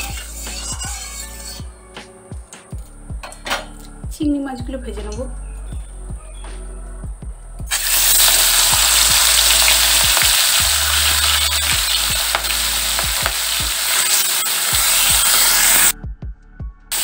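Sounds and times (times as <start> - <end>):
oil spattering crackles: 7.7 - 15.9
prawns sizzling in hot oil: 7.7 - 15.9.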